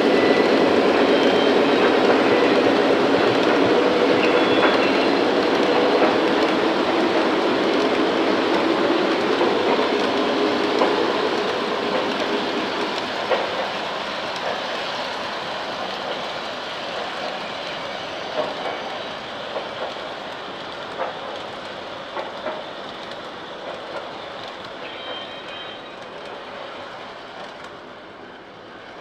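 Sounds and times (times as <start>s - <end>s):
model train rolling on track: 0.0s - 29.0s
wheels clicking over rail joints: 0.3s - 14.8s.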